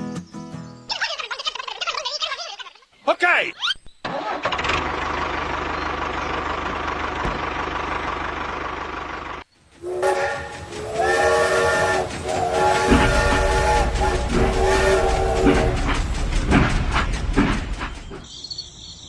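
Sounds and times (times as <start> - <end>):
multi-note horn blasts: 9.8 - 15.8.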